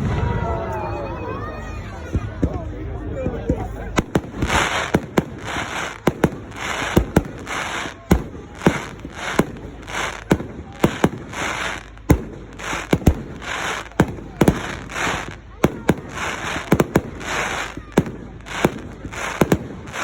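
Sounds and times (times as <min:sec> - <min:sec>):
fireworks bangs: 0:00.0 - 0:20.0
fireworks hissing bursts: 0:04.0 - 0:20.0.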